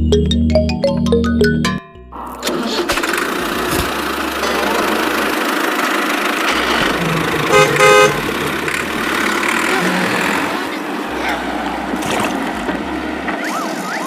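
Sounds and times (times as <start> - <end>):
vehicle running noise: 2.1 - 14.0
short horn beeps: 7.4 - 8.3.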